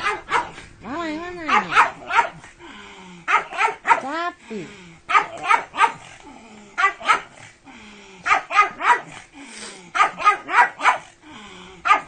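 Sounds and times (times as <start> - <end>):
dog barking: 0.0 - 0.6, 1.4 - 2.5, 3.3 - 4.1, 5.1 - 6.1, 6.8 - 7.4, 8.2 - 9.2, 9.9 - 11.1.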